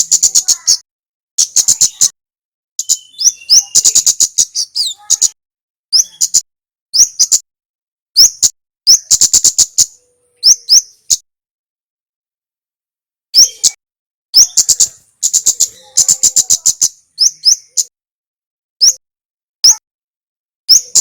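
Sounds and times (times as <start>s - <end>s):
songbird singing sharp chips: 1.4s - 2.2s, 2.8s - 7.4s, 8.2s - 11.2s, 14.4s - 17.9s, 18.8s - 19.0s, 19.6s - 19.8s, 20.7s - 21.0s.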